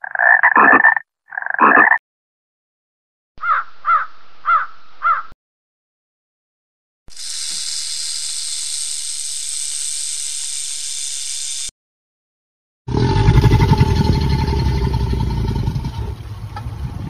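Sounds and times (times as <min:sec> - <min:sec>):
low throbbing growl: 0:12.9 - 0:17.0.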